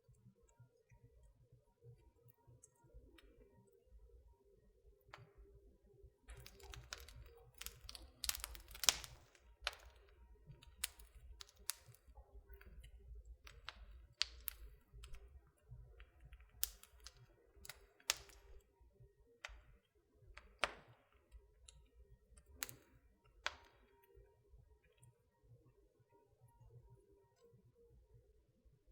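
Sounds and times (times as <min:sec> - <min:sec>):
wood fire crackling: 0:06.2 - 0:18.8, 0:19.4 - 0:24.2.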